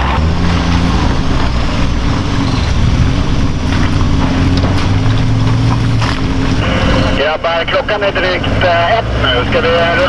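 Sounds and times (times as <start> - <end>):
truck engine running: 0.0 - 10.0.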